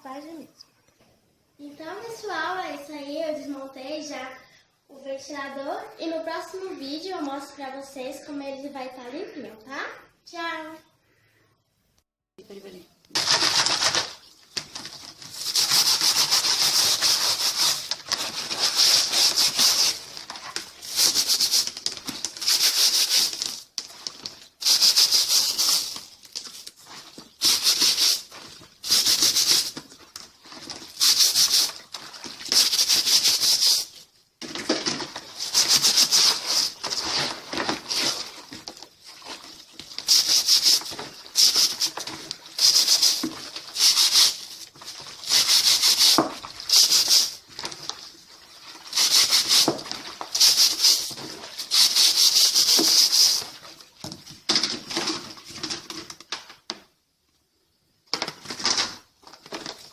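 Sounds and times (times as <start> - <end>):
hissing scrubbing of washing: 13.2 - 34.1, 35.1 - 54.0.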